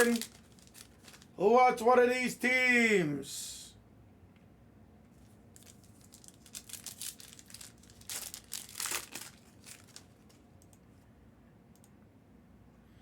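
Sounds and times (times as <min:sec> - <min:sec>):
plastic packaging crinkling: 0:00.0 - 0:01.4, 0:05.2 - 0:10.4.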